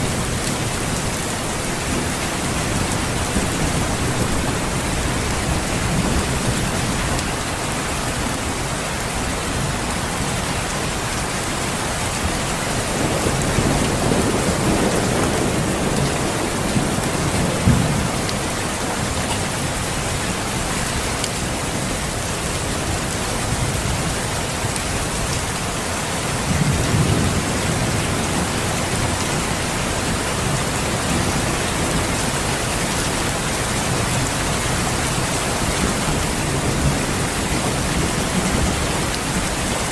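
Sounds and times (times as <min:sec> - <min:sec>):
steady rain: 0:00.0 - 0:39.9
thunder rumbling: 0:12.8 - 0:19.1.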